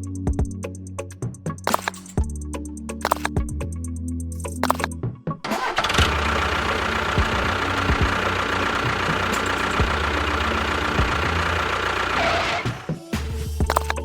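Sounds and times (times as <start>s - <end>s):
small motor running with whine: 6.0s - 12.8s.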